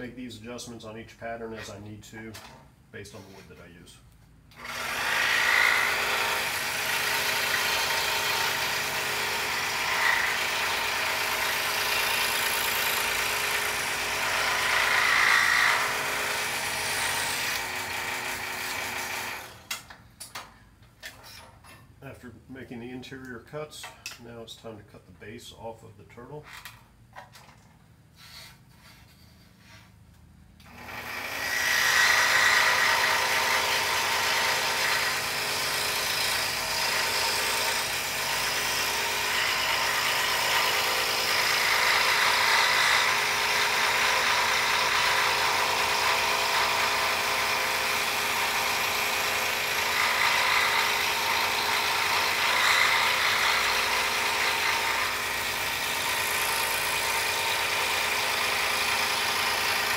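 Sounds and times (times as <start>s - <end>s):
scroll saw cutting wood: 4.5s - 19.9s, 30.6s - 59.9s.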